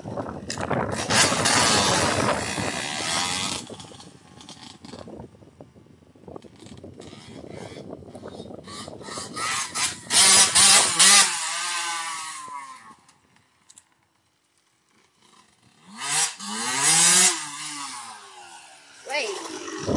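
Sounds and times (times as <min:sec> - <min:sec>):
motorbike engine revving: 0:00.7 - 0:05.1, 0:08.7 - 0:13.0, 0:15.1 - 0:19.9.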